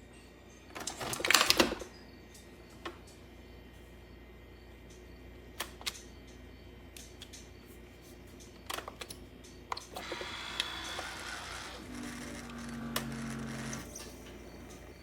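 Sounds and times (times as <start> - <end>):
coffee maker hissing: 9.9 - 15.0.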